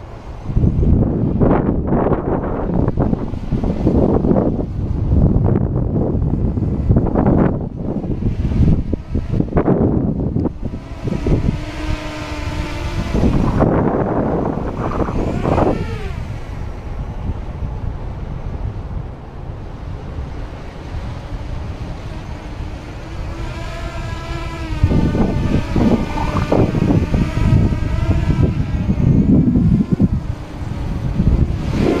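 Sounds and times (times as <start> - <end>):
wind rumble on microphone: 0.0 - 32.0
drone motors whining: 6.4 - 17.3, 20.5 - 32.0.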